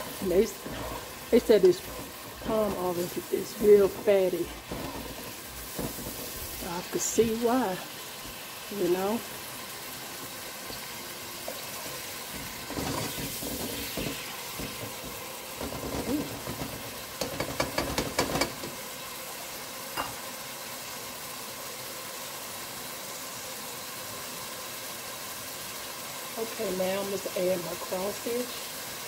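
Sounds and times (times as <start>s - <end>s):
stirring: 0.0s - 18.8s
onion sizzling in oil: 0.0s - 29.0s.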